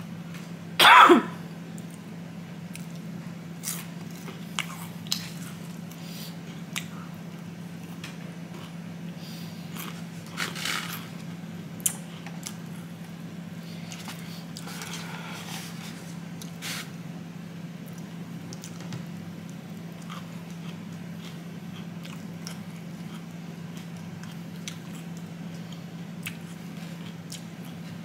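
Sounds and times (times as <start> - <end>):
steady low hum: 0.0 - 28.0
person chewing fried chicken: 2.7 - 7.0, 19.4 - 28.0.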